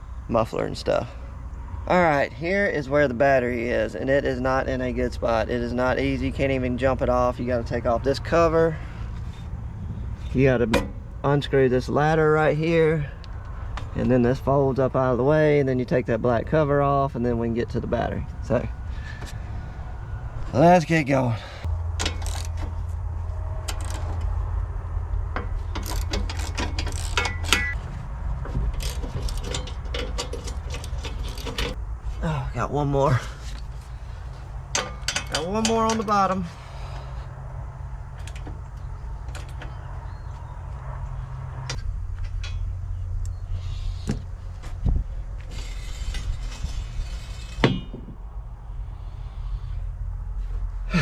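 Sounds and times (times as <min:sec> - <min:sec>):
steady low hum: 0:00.0 - 0:51.0
metal clanks and knocks: 0:10.2 - 0:11.1, 0:21.9 - 0:22.8, 0:25.3 - 0:27.8, 0:28.4 - 0:31.8, 0:34.7 - 0:36.3, 0:41.7 - 0:42.8, 0:45.4 - 0:48.2
metal ring: 0:10.2 - 0:11.1, 0:25.3 - 0:27.8, 0:34.7 - 0:36.3, 0:45.4 - 0:48.2
hand tool clicking on bolts: 0:25.4 - 0:27.8
rasping metal scrape: 0:28.6 - 0:31.8, 0:45.4 - 0:48.2.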